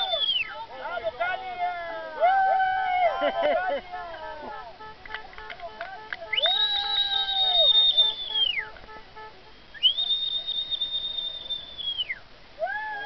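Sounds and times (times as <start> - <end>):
high whistled notes: 0.0 - 0.5, 4.5 - 12.2
lower whistle: 0.0 - 0.5, 6.3 - 8.8, 9.6 - 13.0.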